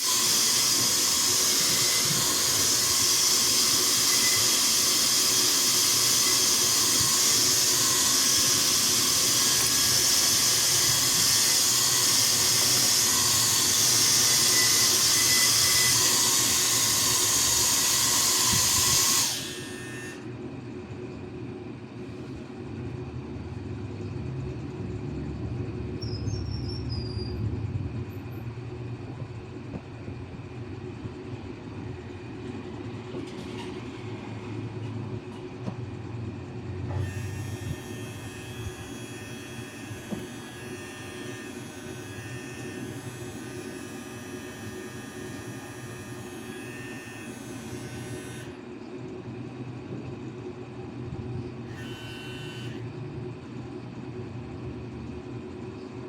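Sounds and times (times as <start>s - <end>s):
electric nail drill humming: 0.0s - 20.3s, 36.9s - 48.6s, 51.7s - 52.9s.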